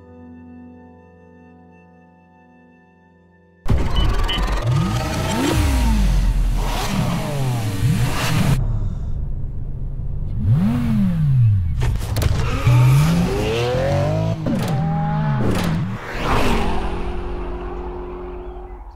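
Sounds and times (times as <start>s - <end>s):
sports car engine revving: 4.6s - 8.6s, 10.2s - 16.0s.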